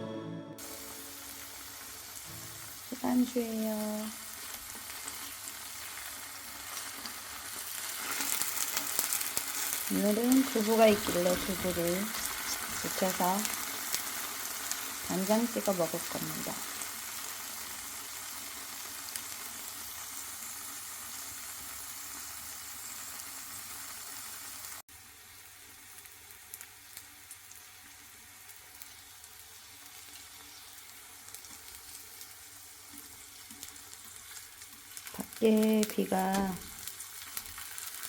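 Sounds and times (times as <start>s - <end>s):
tofu sizzling in frying oil: 0.6s - 38.0s.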